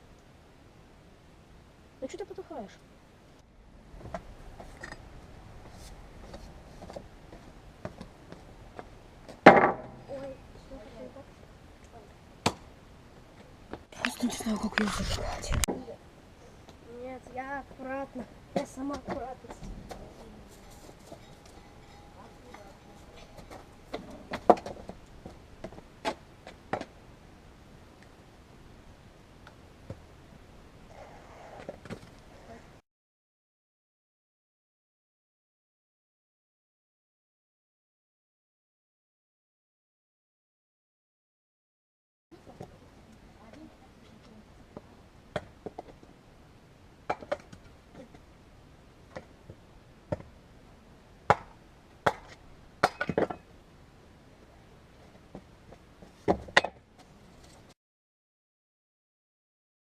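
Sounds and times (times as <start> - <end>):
firewood knocking and cracking: 8.8 - 10.0, 23.3 - 26.9.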